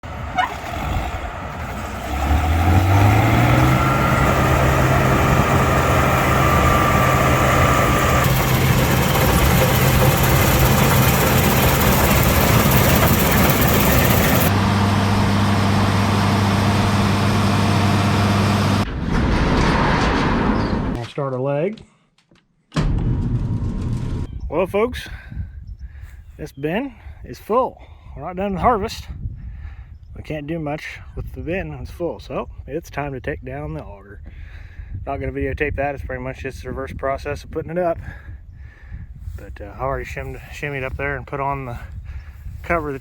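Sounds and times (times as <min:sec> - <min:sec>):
heavy engine running: 0:00.0 - 0:19.1.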